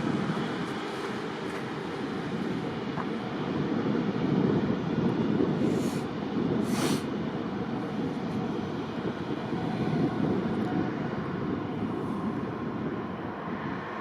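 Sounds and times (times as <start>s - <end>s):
engine rumble: 0.0s - 14.0s
faint constant whine: 0.0s - 14.0s
short hisses: 5.7s - 7.1s.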